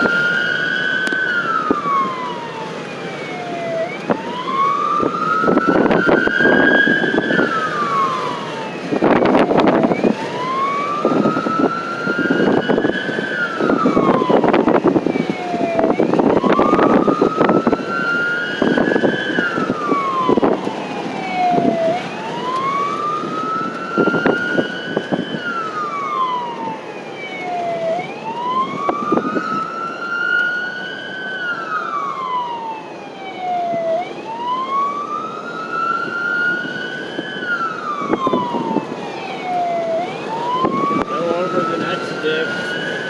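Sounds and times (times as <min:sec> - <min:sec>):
vehicle road noise: 0:00.0 - 0:43.0
wailing emergency siren: 0:00.0 - 0:43.0.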